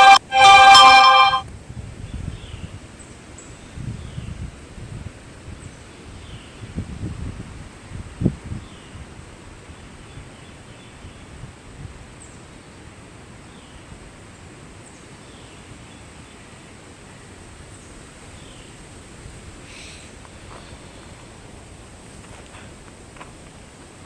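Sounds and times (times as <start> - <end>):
wind rustling trees: 0.0 - 24.0
wind buffeting microphone: 1.6 - 2.9, 3.7 - 9.2.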